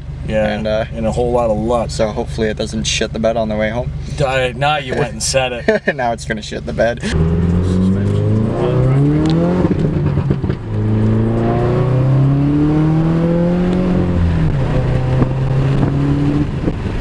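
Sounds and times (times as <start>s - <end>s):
car engine accelerating through gears: 6.5s - 17.0s.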